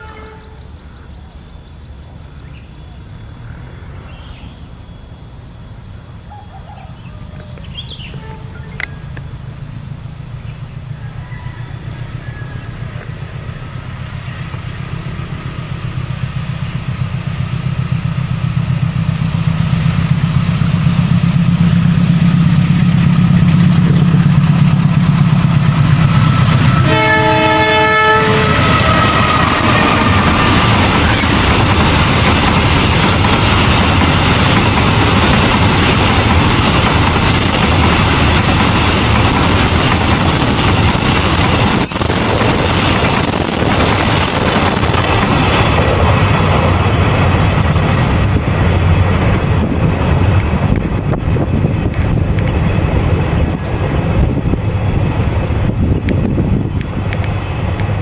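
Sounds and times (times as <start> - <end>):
train horn: 0.0 - 0.8, 6.3 - 8.9, 26.2 - 30.1
locomotive engine drone: 0.0 - 58.0
wheel on rail noise: 0.0 - 58.0.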